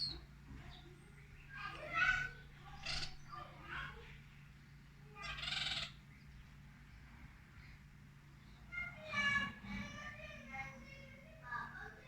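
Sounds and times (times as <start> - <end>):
birds calling: 0.0 - 0.2.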